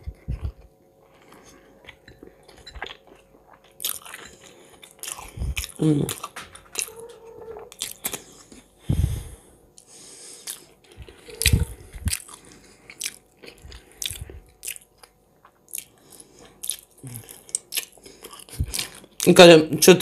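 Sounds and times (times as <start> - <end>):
chewing and biting: 0.0 - 8.7, 9.8 - 19.3.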